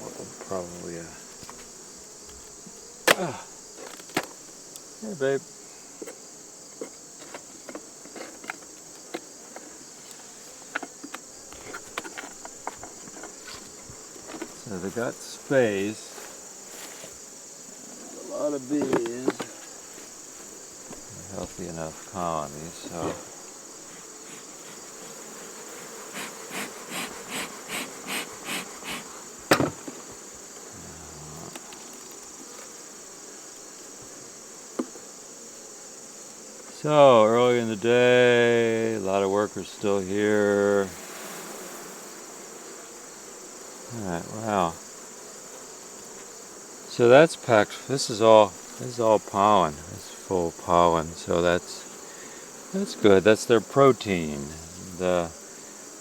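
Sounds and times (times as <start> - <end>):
crickets chirping: 0.0 - 56.0
honey bees buzzing: 0.0 - 56.0.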